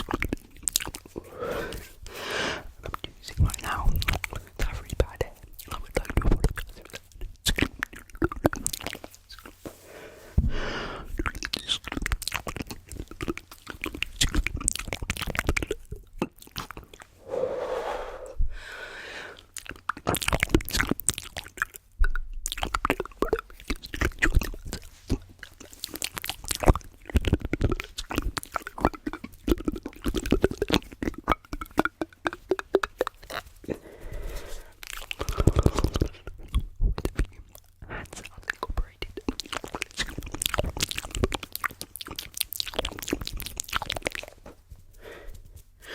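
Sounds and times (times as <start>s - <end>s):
voiced mouth sounds: 0.0s - 44.4s
mouth clicks and tapping: 2.8s - 9.5s, 10.4s - 17.1s, 19.4s - 45.2s.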